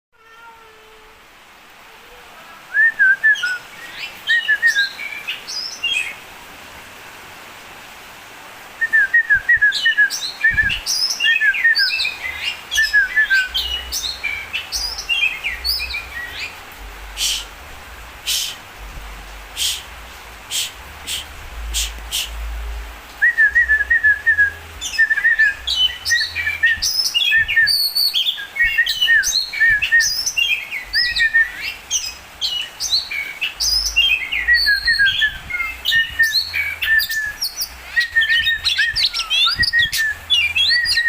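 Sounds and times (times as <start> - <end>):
bird song whistles and chirps: 2.7 - 6.2, 8.8 - 16.6, 23.2 - 41.0.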